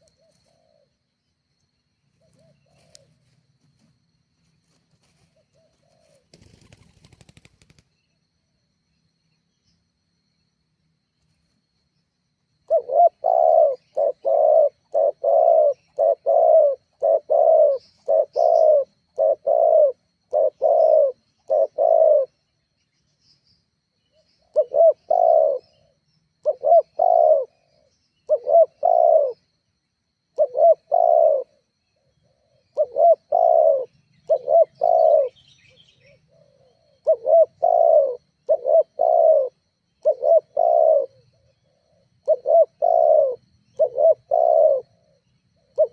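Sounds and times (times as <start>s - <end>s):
dove cooing: 0.0s - 0.9s, 2.2s - 3.3s, 5.2s - 7.7s, 12.6s - 22.4s, 24.4s - 29.5s, 30.4s - 45.9s.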